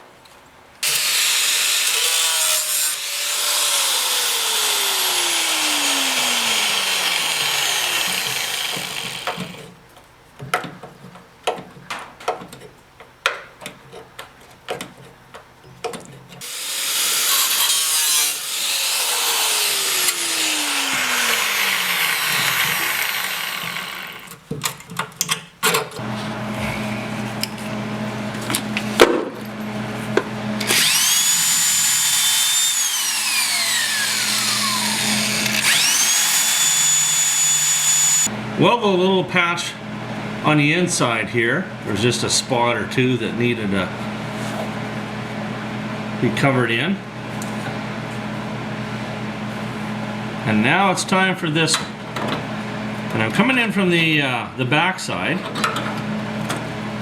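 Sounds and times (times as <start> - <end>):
power grinder on metal: 0.8 - 9.7, 16.4 - 24.4, 30.6 - 38.3.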